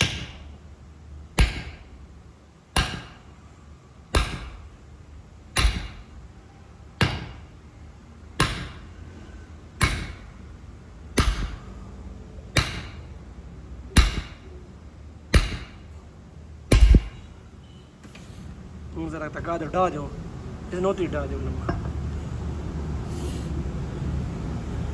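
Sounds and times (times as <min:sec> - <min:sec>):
hammer blows on metal: 0:11.2 - 0:11.9.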